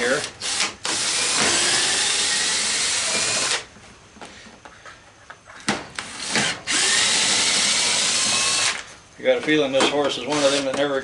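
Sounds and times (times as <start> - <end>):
power drill running: 0.2 - 3.6, 6.1 - 8.8, 10.3 - 10.6.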